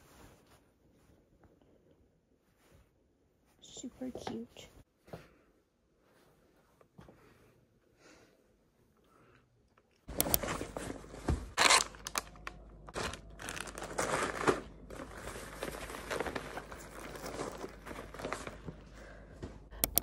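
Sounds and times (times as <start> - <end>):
rustling and crinkling handling noise: 10.1 - 19.7.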